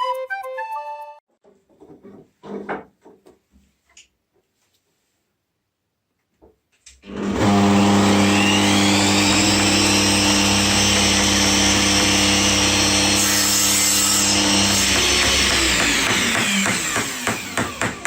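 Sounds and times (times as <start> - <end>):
power tool motor running: 7.1 - 18.0.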